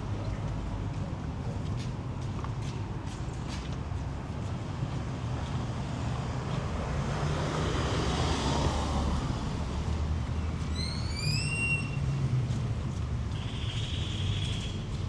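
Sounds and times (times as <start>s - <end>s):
low rumble of traffic: 0.0s - 15.0s
vehicle passing close by: 6.3s - 10.7s.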